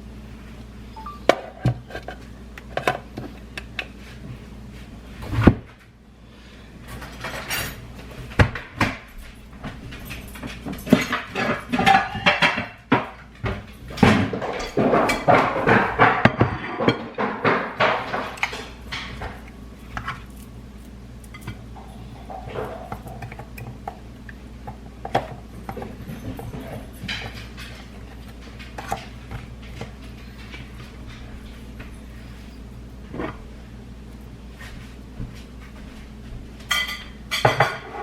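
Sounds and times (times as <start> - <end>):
dishes and cutlery clattering: 9.9 - 19.4, 25.1 - 31.3, 36.7 - 38.0.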